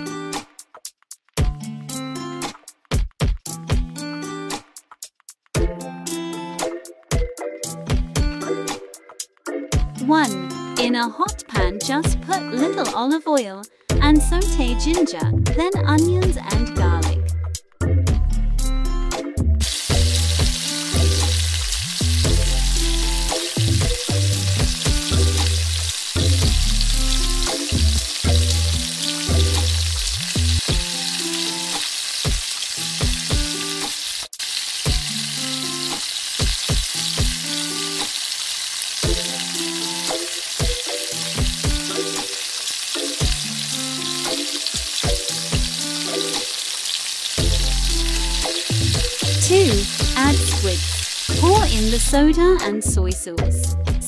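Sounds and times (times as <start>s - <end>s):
background music with bass line: 1.4s - 4.6s, 5.6s - 12.9s, 13.9s - 31.3s, 39.0s - 42.3s, 43.1s - 46.4s, 47.4s - 54.0s
food sizzling in oil: 19.6s - 52.6s.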